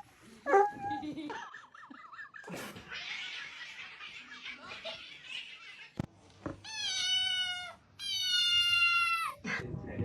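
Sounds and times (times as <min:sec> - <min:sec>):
cat meowing: 0:06.6 - 0:09.4.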